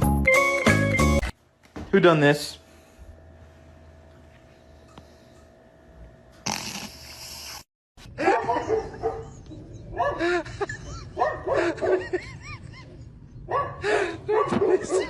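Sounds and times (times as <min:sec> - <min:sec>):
dog whining and yipping: 0:08.3 - 0:10.3.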